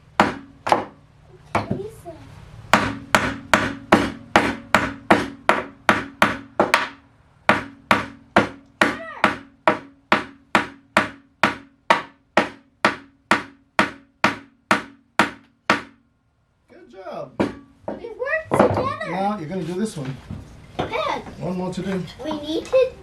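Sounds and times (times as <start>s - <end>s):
hammer driving nail into wood: 0.2s - 1.0s, 2.7s - 16.0s.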